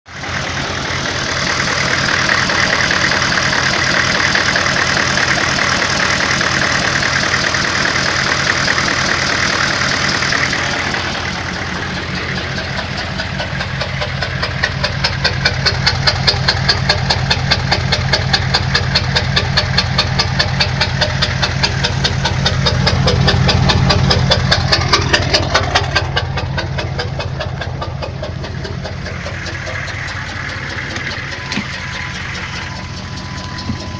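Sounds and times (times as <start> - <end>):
diesel truck engine idling: 0.0 - 33.9
engine knocking: 0.1 - 33.9.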